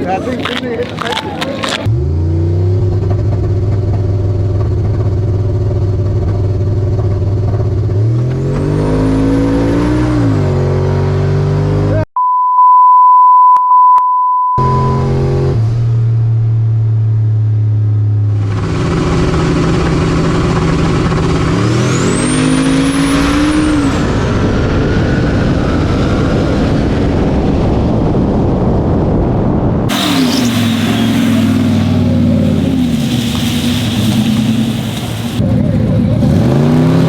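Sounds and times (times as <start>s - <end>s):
electronic beep: 12.2s - 15.3s
drag racing truck engine: 14.6s - 28.2s, 29.1s - 37.0s
high engine whine: 14.6s - 37.0s.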